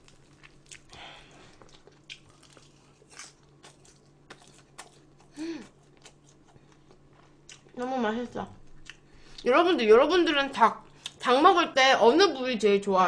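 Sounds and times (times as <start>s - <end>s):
soft chewing with smacks: 0.0s - 7.9s, 8.5s - 9.5s, 10.8s - 11.2s.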